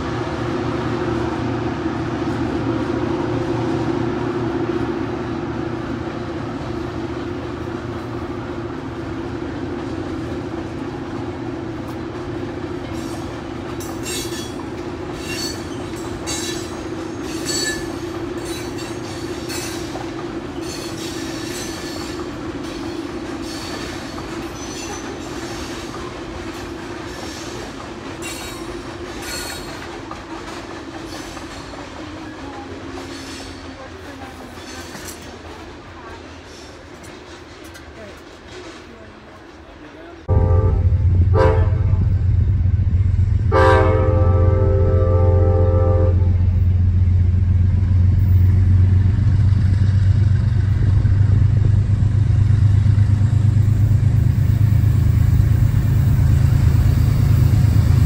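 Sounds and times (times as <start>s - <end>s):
train cars rumbling on bridge: 0.0s - 58.0s
wheel squeals and clicks: 23.4s - 25.8s.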